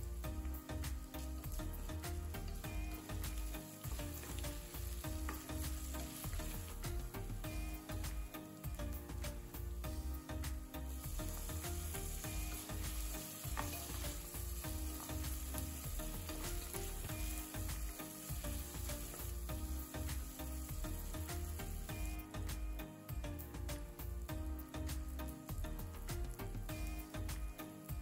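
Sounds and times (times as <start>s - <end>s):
vegetables sizzling in hot oil: 0.0s - 22.7s, 24.0s - 28.0s
spatula scraping and tapping pan: 3.2s - 6.8s, 11.3s - 18.0s.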